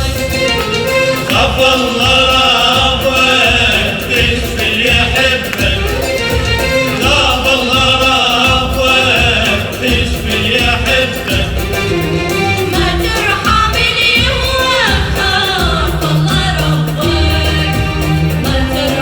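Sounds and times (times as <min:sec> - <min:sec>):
hand percussion: 0:00.0 - 0:19.0
people singing: 0:00.0 - 0:19.0.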